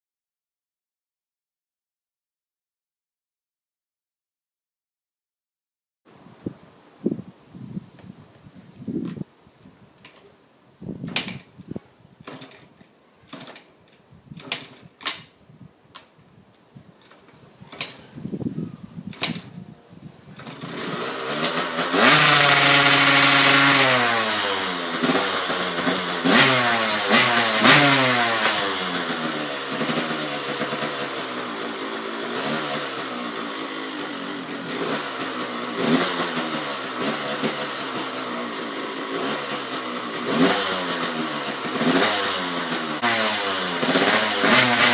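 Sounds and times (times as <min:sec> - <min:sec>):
motorcycle engine revving: 0:20.3 - 0:44.9.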